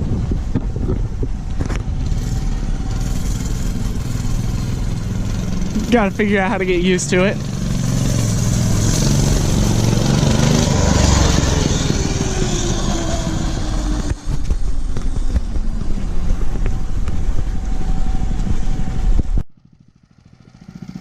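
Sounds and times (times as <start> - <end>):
minibike engine running: 0.0 - 21.0.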